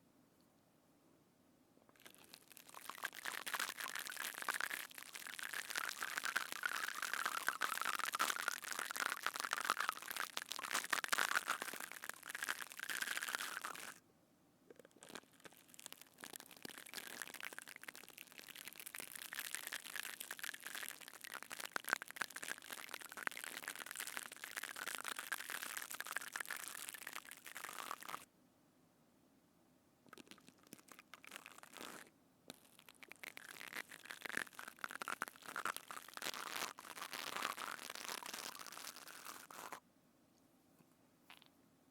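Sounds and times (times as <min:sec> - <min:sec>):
slime squishing and crackling: 0:01.9 - 0:14.0, 0:14.7 - 0:28.3, 0:30.1 - 0:39.8.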